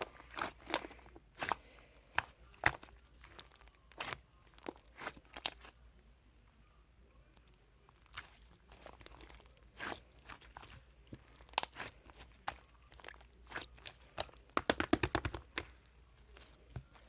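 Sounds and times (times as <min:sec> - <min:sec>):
slime crackling pops: 0:14.5 - 0:15.7.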